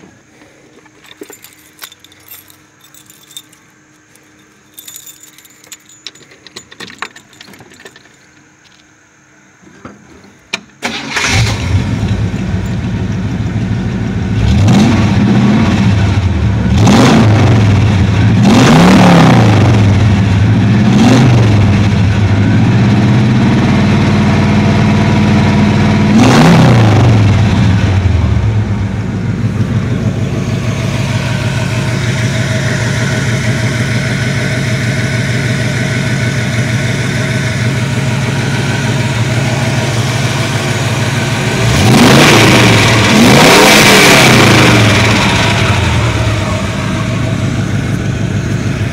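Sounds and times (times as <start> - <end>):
open-header engine revving and idling: 10.8 - 48.9.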